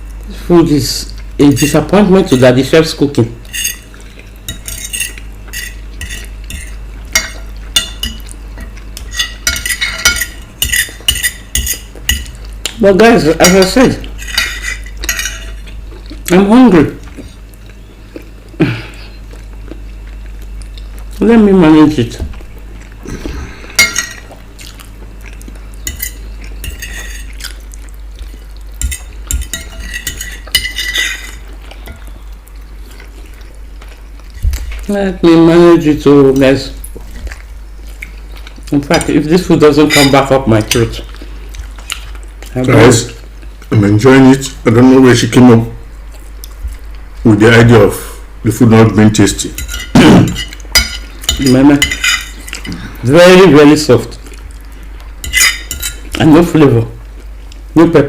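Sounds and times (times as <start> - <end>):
cutlery scraping and clinking on plate: 1.5 - 2.5, 3.4 - 3.9, 4.5 - 12.4, 13.4 - 15.8, 23.8 - 24.3, 25.9 - 27.6, 28.8 - 32.1, 39.8 - 41.1, 49.5 - 52.7, 55.2 - 56.2.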